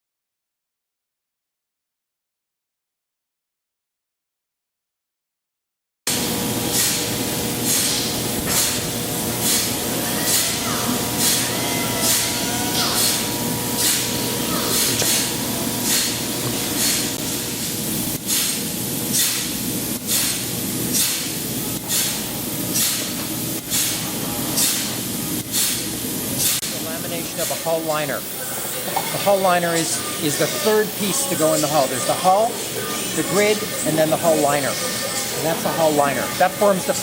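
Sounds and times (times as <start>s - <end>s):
machine hum: 6.1s - 27.3s.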